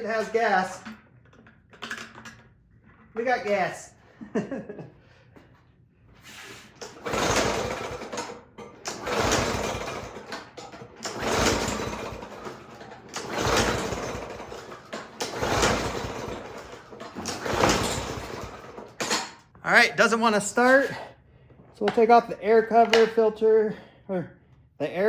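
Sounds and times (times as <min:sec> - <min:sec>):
lawn mower engine cranking: 0:06.7 - 0:20.9.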